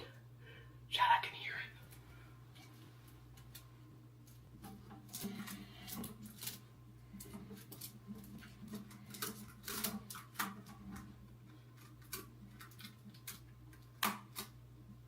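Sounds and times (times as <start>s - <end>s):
low electrical hum: 0.0s - 15.0s
rubber bands cracking watermelon rind: 3.3s - 15.0s.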